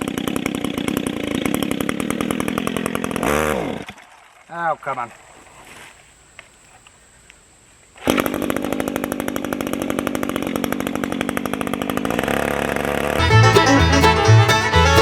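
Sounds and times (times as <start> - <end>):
chainsaw running: 0.0 - 3.9, 8.0 - 15.0
banjo and fiddle music: 13.2 - 15.0.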